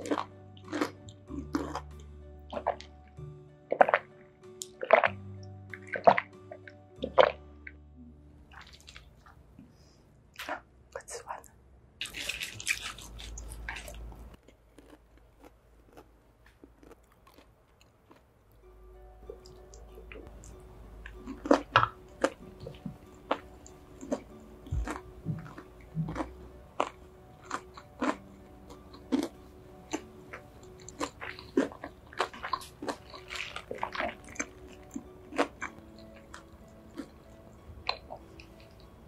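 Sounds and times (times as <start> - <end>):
crunchy chewing: 0.0 - 2.9, 12.0 - 18.6, 19.3 - 38.9
soft background music: 0.0 - 11.4, 12.0 - 15.0, 15.9 - 39.0.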